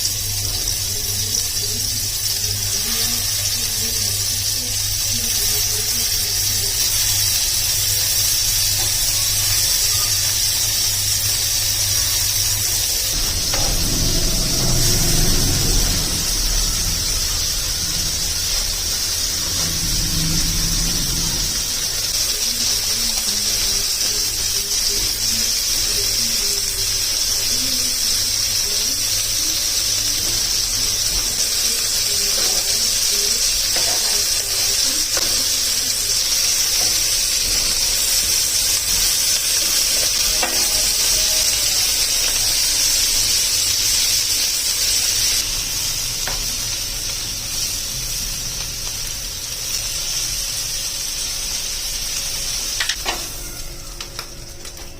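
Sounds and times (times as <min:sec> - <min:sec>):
food sizzling in a frying pan: 0:00.0 - 0:54.9.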